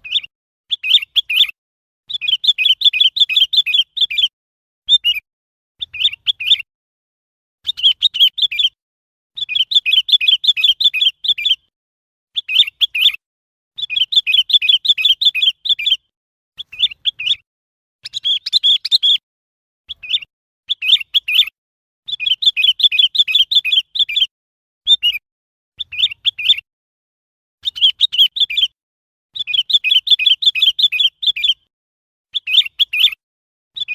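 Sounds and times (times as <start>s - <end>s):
bulbul rapid chirping: 18.0s - 19.2s.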